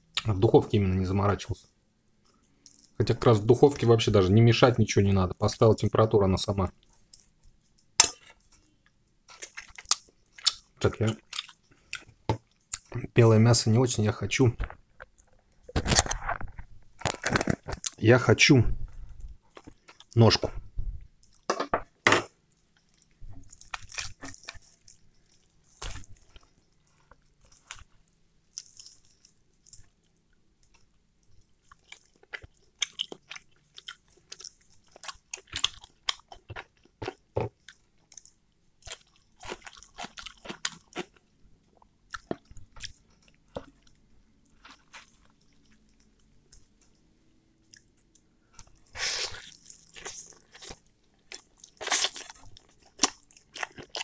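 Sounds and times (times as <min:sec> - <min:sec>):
man chewing with wet mouth smacks: 0:09.3 - 0:12.9, 0:22.5 - 0:54.0.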